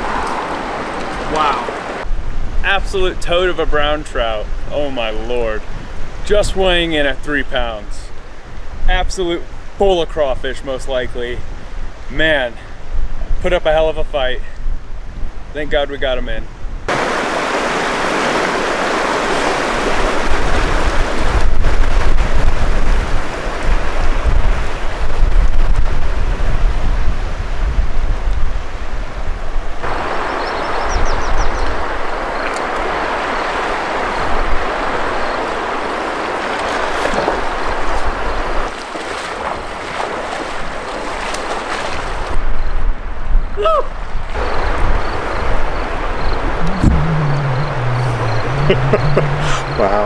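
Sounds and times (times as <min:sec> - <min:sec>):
river water rushing: 0:00.0 - 0:02.0, 0:16.9 - 0:21.0, 0:29.8 - 0:41.9, 0:44.4 - 0:50.0
wind buffeting microphone: 0:00.0 - 0:02.6, 0:20.0 - 0:35.4, 0:44.2 - 0:50.0.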